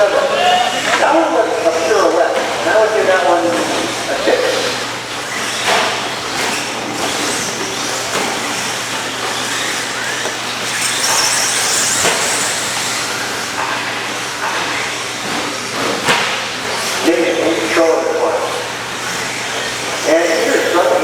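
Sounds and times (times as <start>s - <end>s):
rc truck motor whine: 3.7s - 17.0s, 18.2s - 21.0s.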